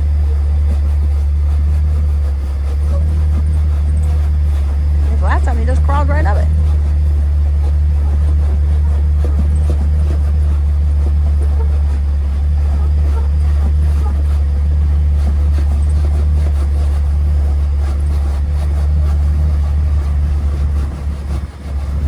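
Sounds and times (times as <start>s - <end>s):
engine running under load: 0.0s - 22.0s.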